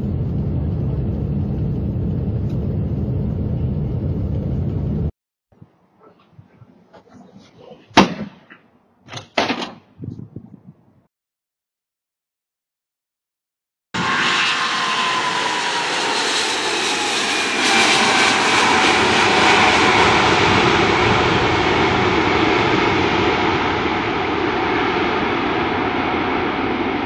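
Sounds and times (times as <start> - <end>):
jet engine whine: 0.0 - 5.1, 14.0 - 27.0
jet engines rushing: 14.0 - 27.0.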